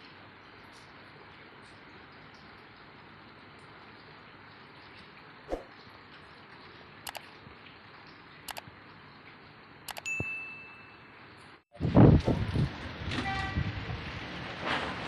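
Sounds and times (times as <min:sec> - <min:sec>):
rain hiss: 0:00.0 - 0:15.0
sharp clicks: 0:07.1 - 0:07.3, 0:09.9 - 0:10.1
short ringing ding: 0:10.0 - 0:11.1.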